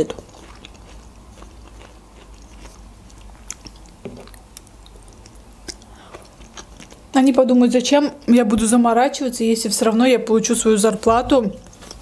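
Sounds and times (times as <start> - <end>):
person chewing food: 0.0 - 7.1.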